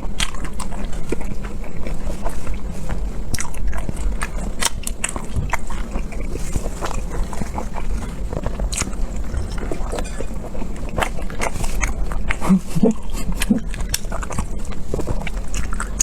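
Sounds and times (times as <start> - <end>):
wet chewing and smacking: 0.0 - 16.0.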